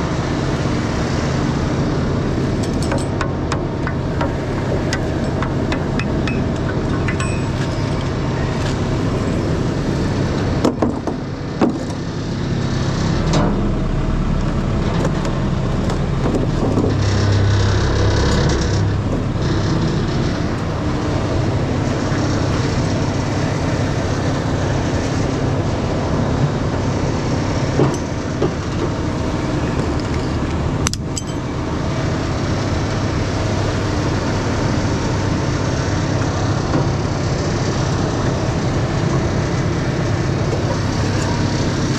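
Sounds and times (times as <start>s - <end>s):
diesel truck engine running: 0.0s - 41.9s
sharp metallic knocks: 2.6s - 7.9s.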